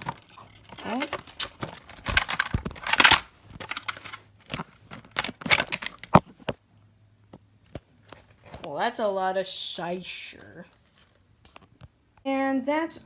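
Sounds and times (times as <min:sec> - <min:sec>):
crinkling and rustling handling: 0:00.0 - 0:06.6, 0:07.2 - 0:08.9, 0:10.3 - 0:12.0.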